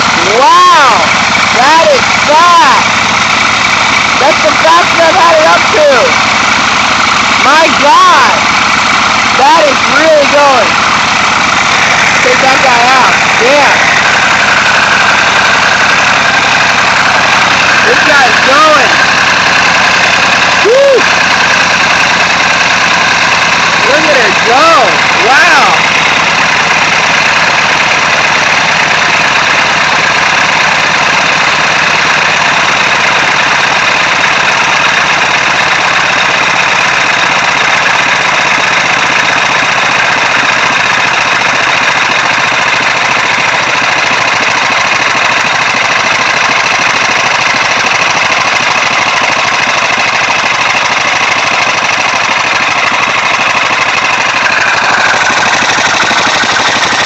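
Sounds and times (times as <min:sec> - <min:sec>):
air-powered engine running fast: 0:00.0 - 0:57.0.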